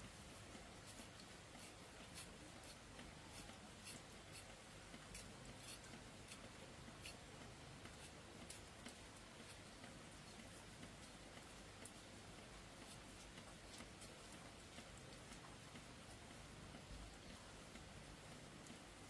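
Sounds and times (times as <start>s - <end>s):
faint small ticks and clicks: 0.0s - 19.0s.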